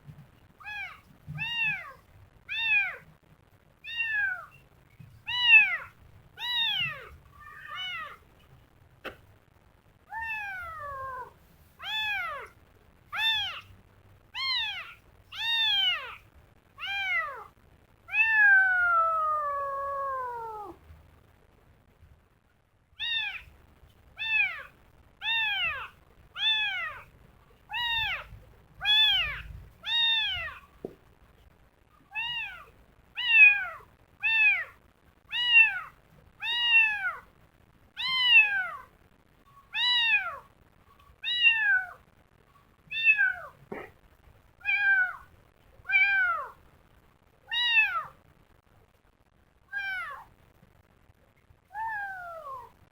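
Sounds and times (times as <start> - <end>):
kitten meowing: 0.6 - 3.0, 3.8 - 4.6, 5.3 - 8.2, 10.1 - 12.6, 13.2 - 13.7, 14.4 - 16.2, 16.8 - 17.5, 18.1 - 20.8, 23.0 - 23.5, 24.2 - 27.1, 27.7 - 30.7, 32.1 - 37.3, 38.0 - 38.9, 39.7 - 40.4, 41.2 - 42.0, 42.9 - 43.9, 44.6 - 45.3, 45.9 - 46.6, 47.5 - 48.2, 49.7 - 50.3, 51.7 - 52.7.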